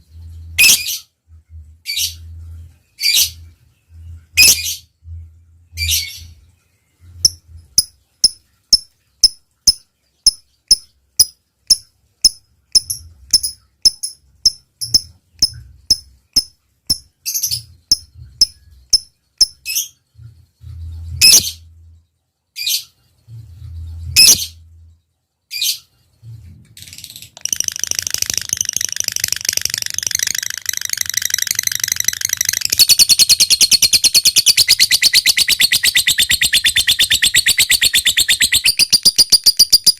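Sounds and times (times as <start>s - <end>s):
lovebird chattering trill: 7.2s - 19.8s, 27.4s - 39.9s
lovebird clicking chirps: 7.2s - 19.8s, 27.4s - 39.9s.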